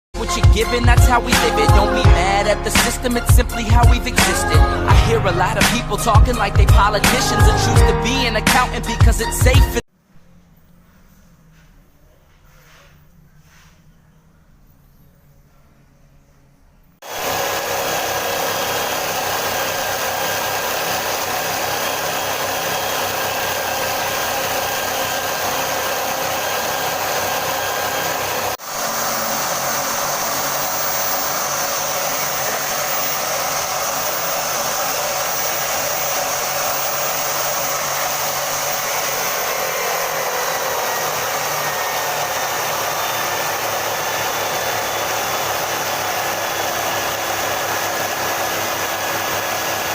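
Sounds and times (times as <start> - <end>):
small electric motor running: 17.0 - 49.9.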